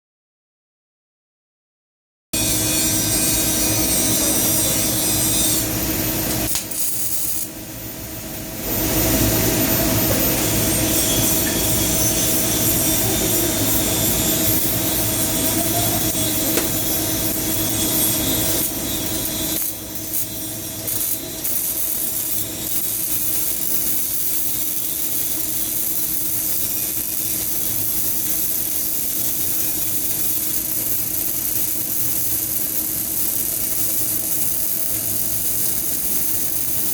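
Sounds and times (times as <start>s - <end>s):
welding arc hissing: 2.4s - 7.6s, 8.6s - 36.9s.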